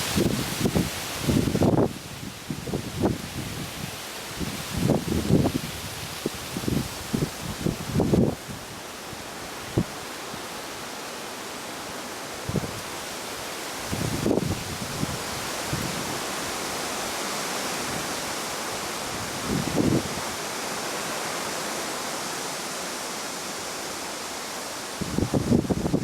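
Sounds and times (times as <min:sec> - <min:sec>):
wind gusts buffeting microphone: 0:00.0 - 0:08.8, 0:12.4 - 0:13.2, 0:13.8 - 0:20.4, 0:25.0 - 0:26.0
wind rushing hiss: 0:00.0 - 0:26.0.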